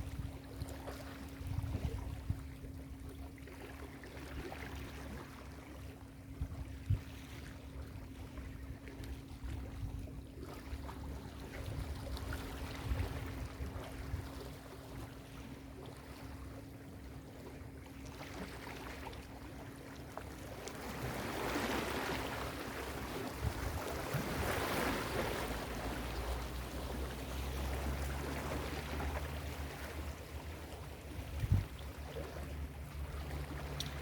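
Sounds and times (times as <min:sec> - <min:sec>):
ocean waves breaking: 0:18.1 - 0:34.0
steady low rumble: 0:22.8 - 0:34.0.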